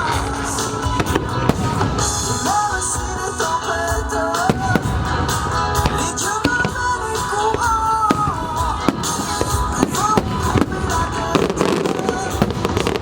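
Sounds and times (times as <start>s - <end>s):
fireworks bangs and crackles: 0.0s - 13.0s
show music with gliding melody: 0.0s - 13.0s.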